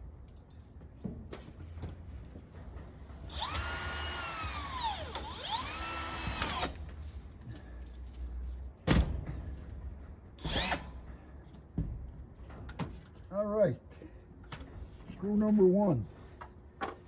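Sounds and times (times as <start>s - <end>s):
cordless drill motor whine: 3.3s - 6.8s, 10.4s - 10.9s.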